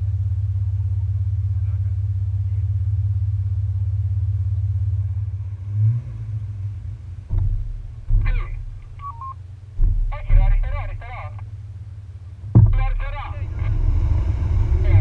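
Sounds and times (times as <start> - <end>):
car engine idling: 0.0 - 15.0
short knocks: 7.2 - 11.6, 12.4 - 13.1.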